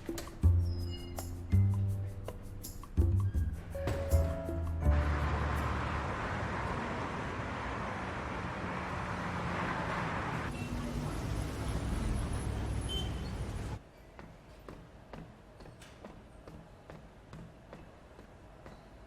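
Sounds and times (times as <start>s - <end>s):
car engine: 4.8s - 12.8s.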